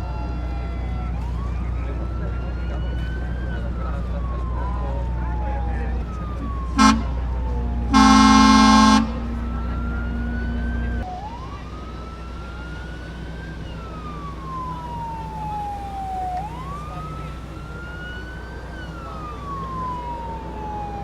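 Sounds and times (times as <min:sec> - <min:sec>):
low engine rumble: 0:00.0 - 0:21.0
siren wailing: 0:00.0 - 0:21.0
horn blast: 0:06.5 - 0:11.0.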